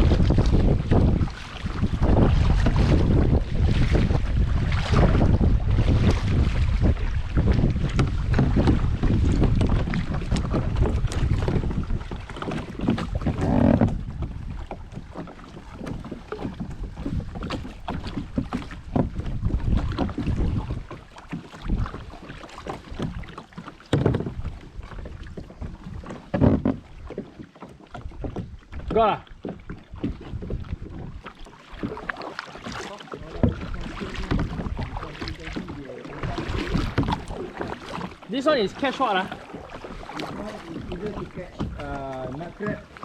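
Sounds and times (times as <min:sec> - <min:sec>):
wind buffeting the microphone: 0:00.0 - 0:23.4, 0:28.0 - 0:31.2, 0:33.2 - 0:42.9
paddle splashing water: 0:00.0 - 0:43.0
small irregular knocks: 0:23.9 - 0:24.4, 0:25.5 - 0:28.5.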